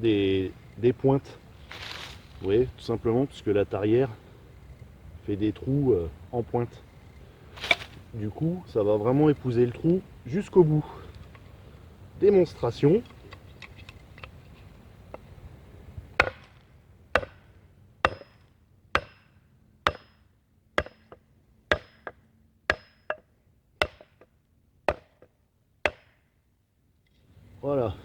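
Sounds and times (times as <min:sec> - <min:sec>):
sharp wooden knocks: 0:16.2 - 0:16.5, 0:17.2 - 0:17.4, 0:18.0 - 0:18.4, 0:19.0 - 0:19.3, 0:19.9 - 0:20.2, 0:20.8 - 0:24.3, 0:24.9 - 0:26.2.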